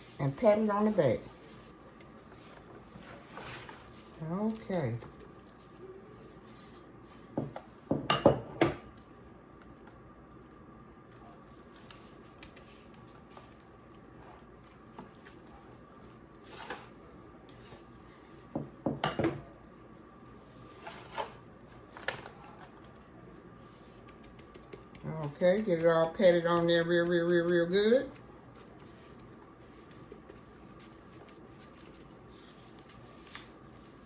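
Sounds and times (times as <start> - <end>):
kitchenware clattering: 7.4 - 8.9, 18.6 - 19.5
patting raw meat: 11.1 - 18.9, 21.5 - 34.0.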